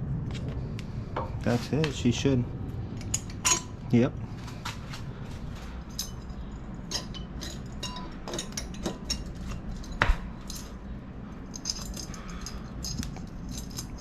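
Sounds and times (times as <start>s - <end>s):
metal clinks of tools: 3.0s - 3.8s, 5.7s - 14.0s.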